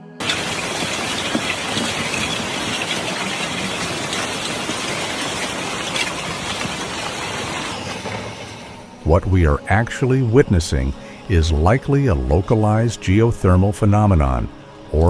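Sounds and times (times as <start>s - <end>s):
gas and mud bursting from ground: 0.2s - 8.9s
scattered crackles: 0.2s - 8.9s.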